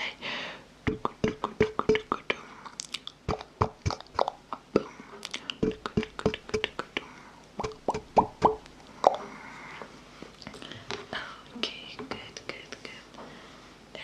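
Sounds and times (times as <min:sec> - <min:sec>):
wet mouth clicks and pops: 0:00.9 - 0:07.0, 0:07.6 - 0:09.2.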